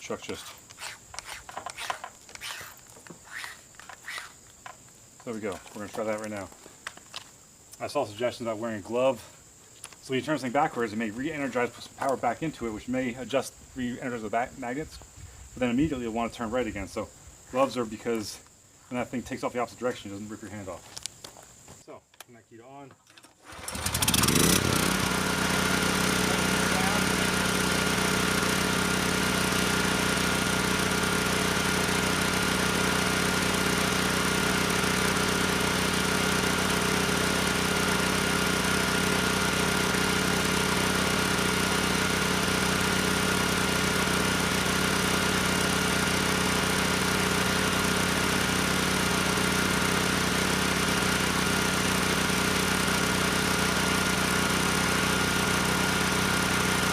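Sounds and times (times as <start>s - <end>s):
generator engine starting and running: 23.2s - 56.9s.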